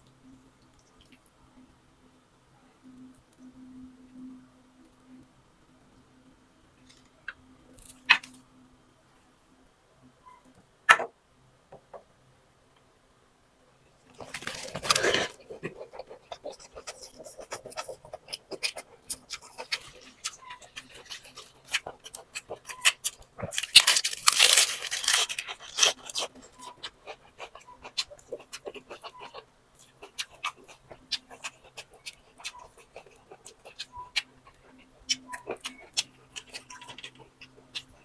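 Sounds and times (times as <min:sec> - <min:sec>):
wet chewing and mouth noises: 0:14.1 - 0:38.0.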